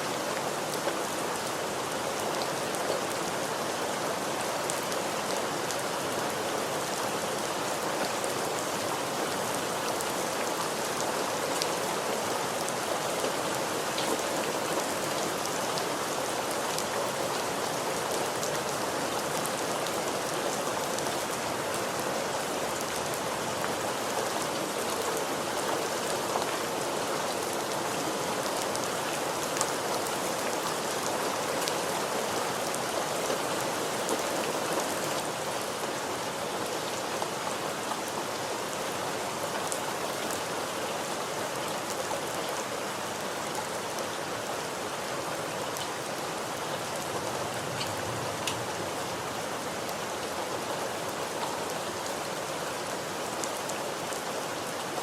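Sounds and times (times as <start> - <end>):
rain pattering: 0.1 - 55.0
raindrops ticking on a surface: 47.0 - 48.9.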